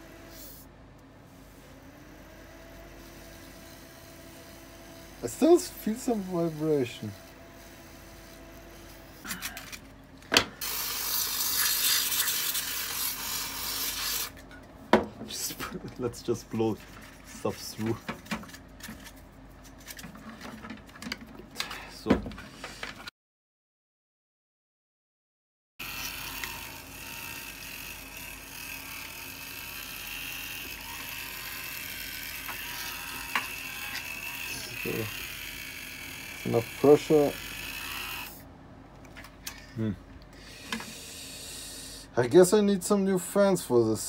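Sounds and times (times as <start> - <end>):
small fan whirring: 0.0 - 23.1, 25.8 - 42.2
compressed air hissing: 40.4 - 42.1.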